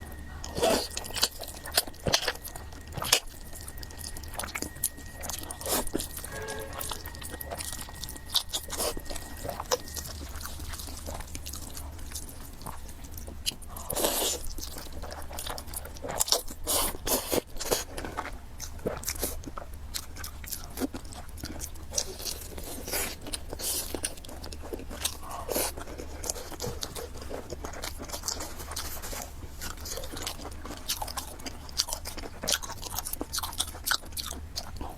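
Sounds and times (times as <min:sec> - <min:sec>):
faint high tone: 0:00.0 - 0:12.0
person chewing crunchy food: 0:00.0 - 0:34.9.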